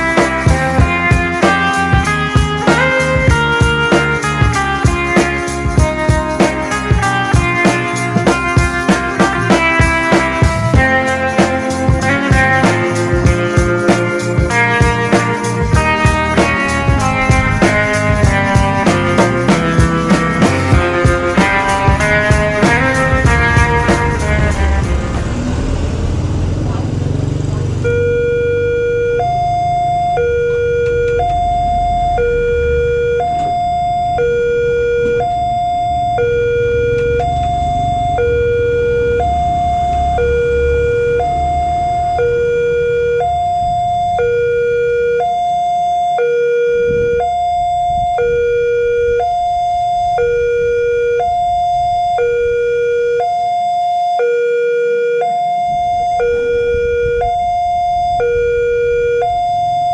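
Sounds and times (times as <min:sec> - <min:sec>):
two-tone level crossing alarm: 0:27.8 - 0:59.9.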